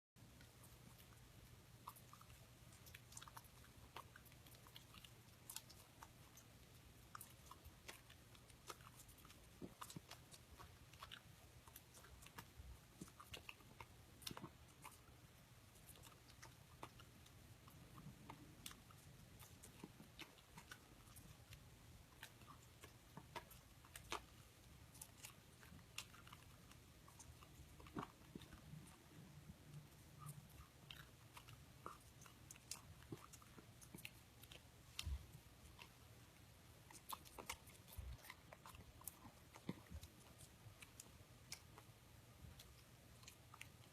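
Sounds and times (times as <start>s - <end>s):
dog chewing and eating: 0.2s - 43.9s.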